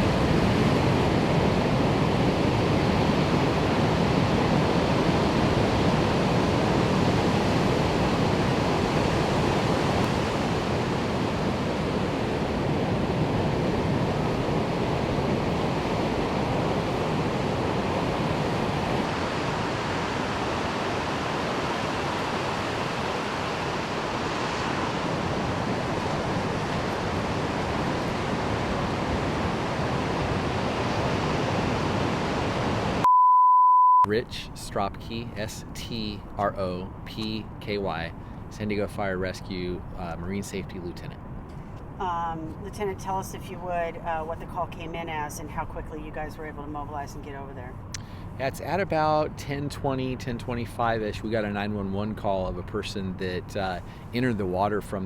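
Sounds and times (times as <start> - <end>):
ocean surf rushing: 0.0 - 33.1.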